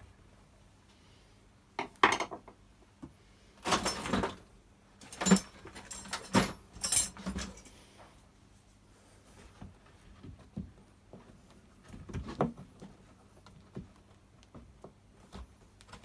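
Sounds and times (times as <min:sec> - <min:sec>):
small parts and tools clinking: 0:05.0 - 0:07.8.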